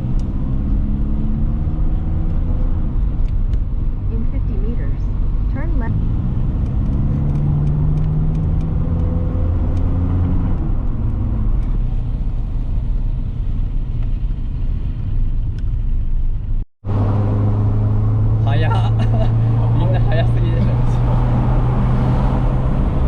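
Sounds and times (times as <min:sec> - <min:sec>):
car engine running: 0:00.0 - 0:23.0
road rumble: 0:00.0 - 0:23.0.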